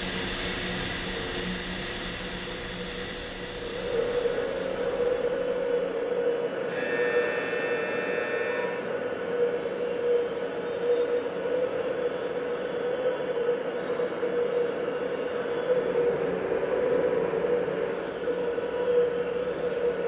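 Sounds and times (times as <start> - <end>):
industrial machinery drone: 0.0 - 8.0, 15.4 - 20.0.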